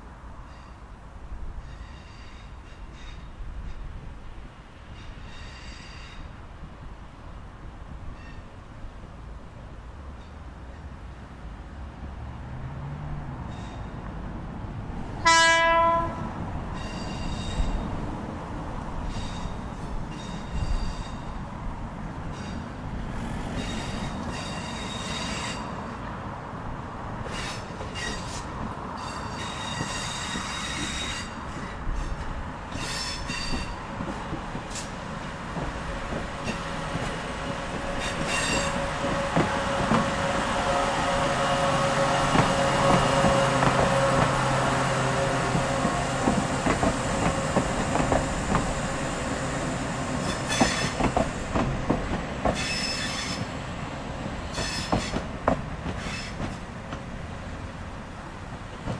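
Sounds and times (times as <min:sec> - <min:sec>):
high-pitched wheel squeals: 0:05.0 - 0:06.3, 0:13.5 - 0:14.0, 0:16.7 - 0:17.8, 0:19.1 - 0:21.3, 0:23.6 - 0:25.8, 0:27.3 - 0:33.8, 0:38.0 - 0:39.3, 0:50.2 - 0:51.1, 0:52.5 - 0:53.5, 0:54.5 - 0:55.2
wheels clicking over rail joints: 0:45.4 - 0:58.9.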